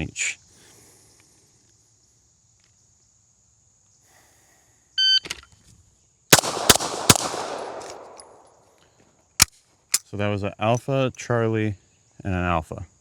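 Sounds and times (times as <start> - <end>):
pistol shots with echo: 6.3 - 8.5.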